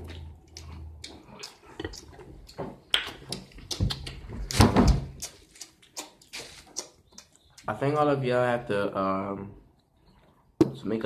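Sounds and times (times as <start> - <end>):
chewing spaghetti: 0.0 - 7.7
mouth clicks and smacks: 0.0 - 7.8.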